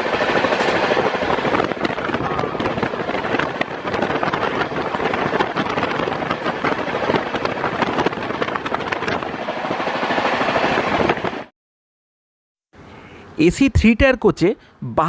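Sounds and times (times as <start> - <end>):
train wheels clattering on rails: 0.0 - 11.5.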